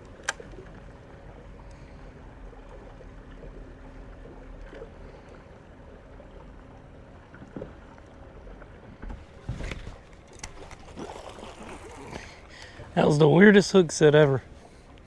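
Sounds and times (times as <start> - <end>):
soft knocks and handling sounds: 9.0 - 10.8.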